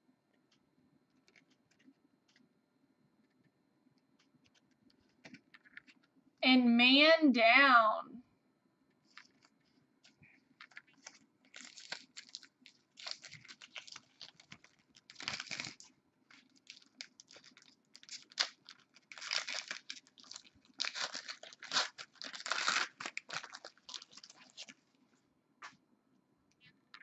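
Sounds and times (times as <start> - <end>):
card pack wrapper crinkling: 9.1 - 9.5, 10.6 - 24.8.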